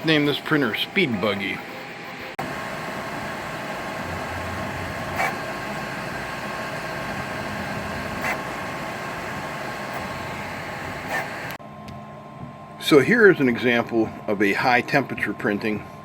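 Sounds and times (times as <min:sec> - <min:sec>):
three d printer whirring: 0:00.0 - 0:11.6.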